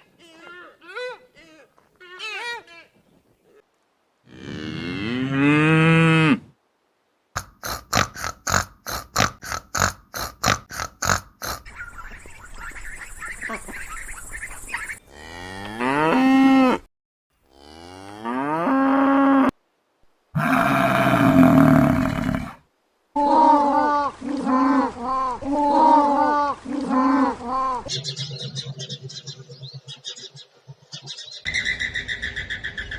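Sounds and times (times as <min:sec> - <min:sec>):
cow mooing: 0:20.4 - 0:22.6.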